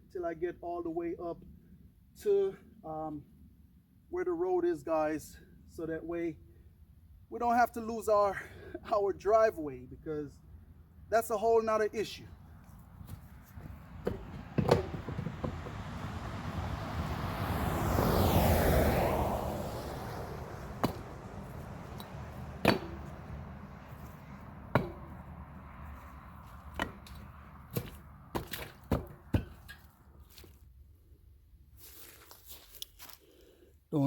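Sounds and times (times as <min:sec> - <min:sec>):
bricks knocking into place: 0:14.0 - 0:16.0, 0:21.9 - 0:23.2.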